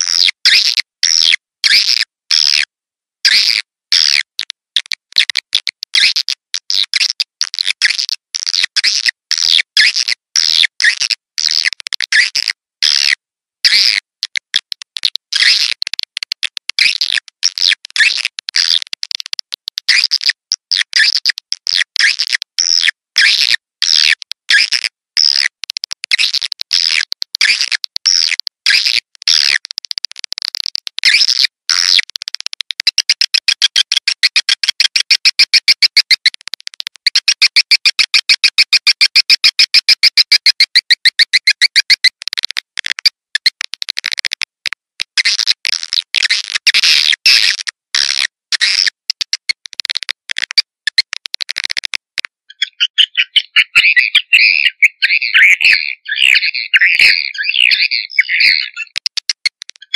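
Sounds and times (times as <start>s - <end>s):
swiftlet chirps and clicks: 32.8s - 36.4s, 37.1s - 44.0s, 52.5s - 59.9s.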